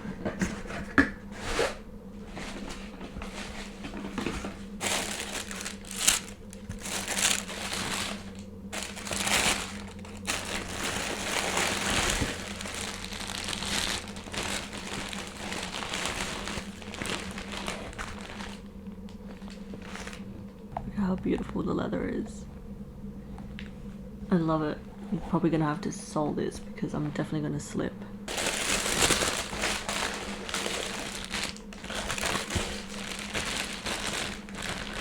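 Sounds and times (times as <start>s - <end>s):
faint steady hum: 0.0s - 35.0s
paper crinkling and rustling: 0.3s - 20.3s, 28.3s - 35.0s.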